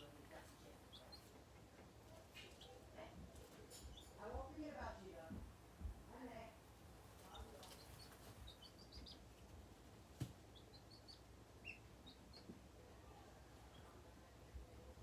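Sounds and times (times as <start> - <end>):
chicks peeping: 0.0 - 4.4, 7.0 - 12.7.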